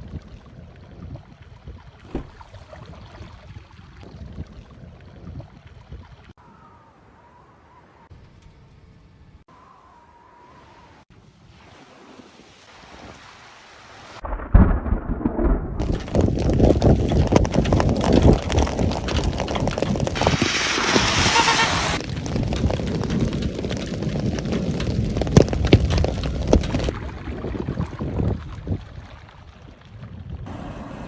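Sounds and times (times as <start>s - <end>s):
heavy rain downpour: 15.8s - 26.9s.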